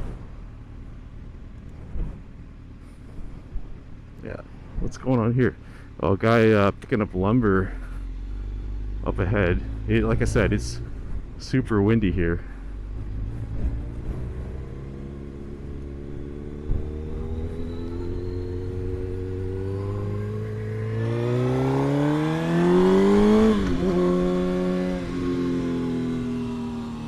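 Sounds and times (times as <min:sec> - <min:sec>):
low wind rumble: 0:00.0 - 0:27.0
motorcycle engine revving: 0:05.7 - 0:27.0.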